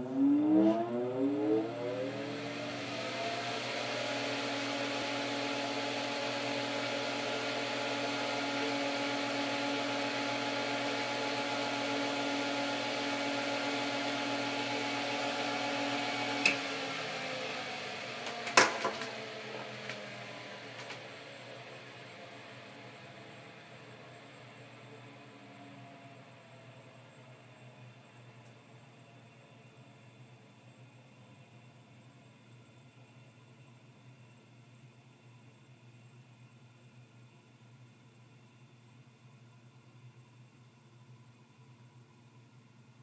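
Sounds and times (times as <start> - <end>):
electric fan running: 0.0 - 28.8.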